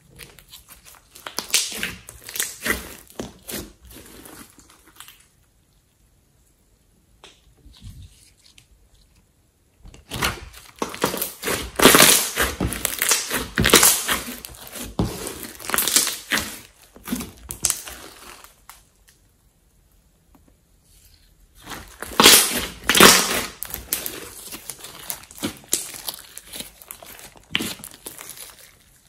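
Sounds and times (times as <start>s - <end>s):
slime squishing wet crackles: 0.0s - 5.8s, 10.0s - 19.2s, 21.5s - 29.0s.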